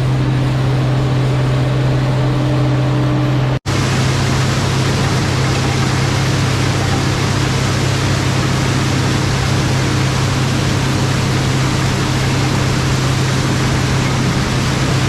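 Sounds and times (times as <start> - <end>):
combine engine drone: 0.0 - 15.0
threshing machinery rushing: 0.0 - 15.0.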